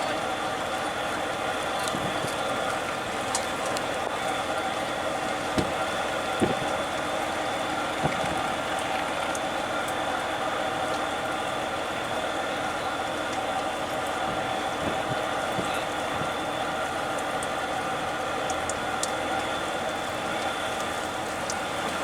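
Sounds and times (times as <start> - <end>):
dull knocks: 1.8 - 2.5, 5.4 - 7.2, 8.0 - 8.7, 14.2 - 16.4.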